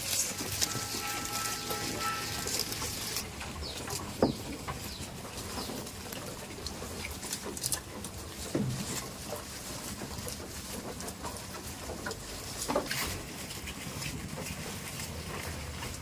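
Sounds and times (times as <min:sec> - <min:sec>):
birds chirping: 0:00.4 - 0:06.4.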